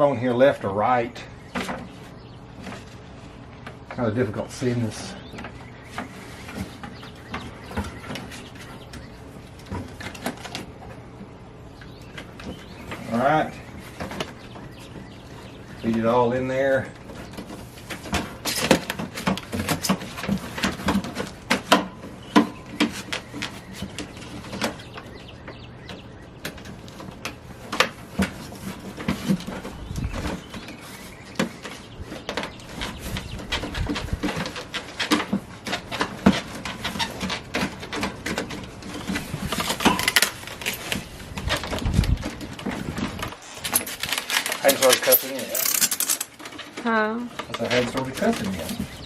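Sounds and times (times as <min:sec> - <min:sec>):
plastic clicks and rattles: 0:32.2 - 0:49.0.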